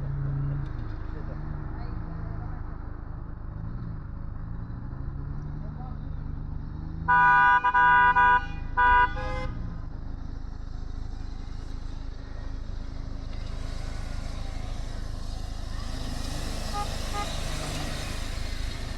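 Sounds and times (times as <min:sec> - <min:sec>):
vehicle horn blasts: 0:07.1 - 0:09.6, 0:16.7 - 0:17.8
engine running: 0:10.0 - 0:18.9.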